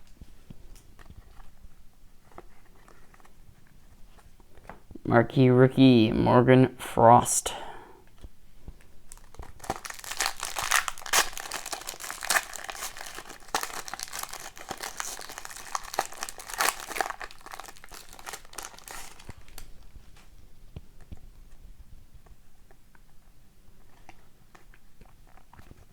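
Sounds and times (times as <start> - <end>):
foil wrapper crinkling and tearing: 8.8 - 20.3.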